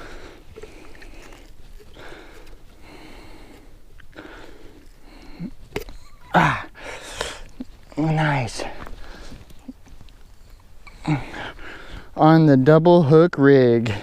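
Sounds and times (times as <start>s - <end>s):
man breathing heavily: 0.0s - 7.9s, 8.5s - 9.8s, 10.6s - 12.2s
man exclaiming: 6.3s - 6.7s.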